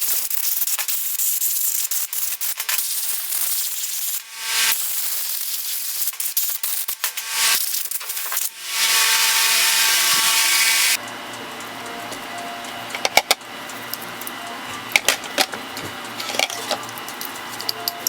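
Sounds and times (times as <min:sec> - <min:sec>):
power tool hissing: 0:02.8 - 0:18.0
metal parts clicking and tapping: 0:12.0 - 0:18.0.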